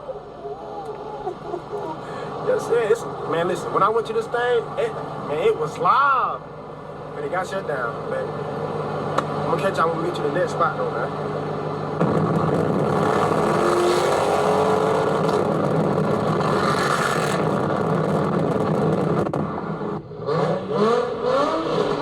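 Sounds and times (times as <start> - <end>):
loud vehicle noise: 0.0 - 22.0
car engine revving: 11.0 - 22.0
rising whine: 11.0 - 22.0.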